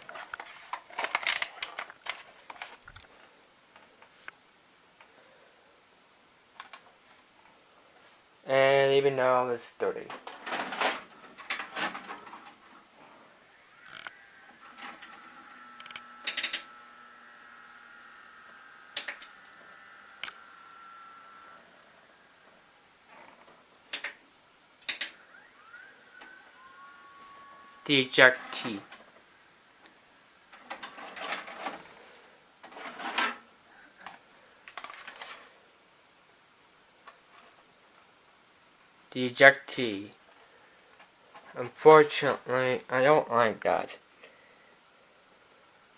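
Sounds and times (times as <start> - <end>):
motor whine: 13.4 - 22.5, 25.2 - 27.9
tape mechanism clicking and clunking: 13.9 - 16.8, 18.5 - 20.5
cassette eject mechanism clicking: 15.8 - 16.7.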